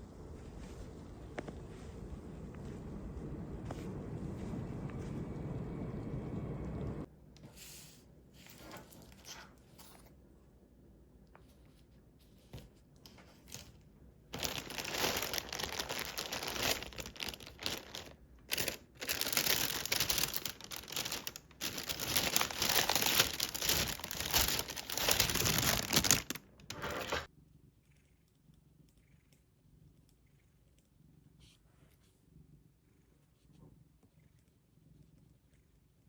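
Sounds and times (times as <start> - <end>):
material crinkling and rustling: 12.4 - 27.3.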